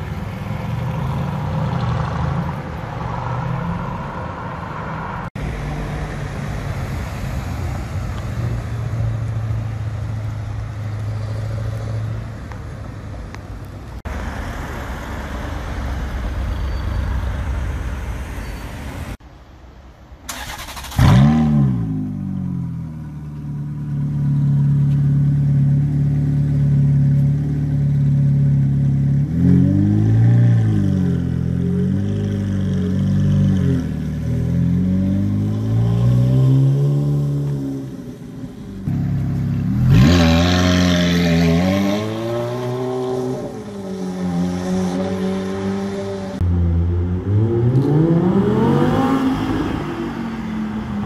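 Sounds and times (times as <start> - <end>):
passing cars in traffic: 0.0 - 51.0
sports car engine starting and revving: 20.3 - 37.9, 38.9 - 51.0.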